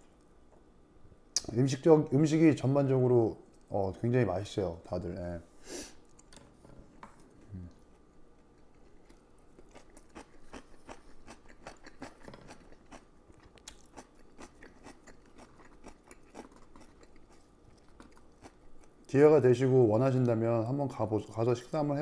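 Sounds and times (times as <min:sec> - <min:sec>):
person chewing crispy food: 0:07.4 - 0:19.1.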